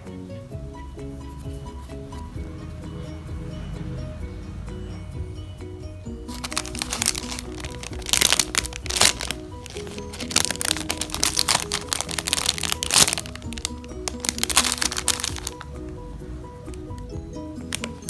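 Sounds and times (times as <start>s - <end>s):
background music: 0.0s - 18.0s
foam toy crackling and crinkling: 6.3s - 15.9s, 16.6s - 18.0s.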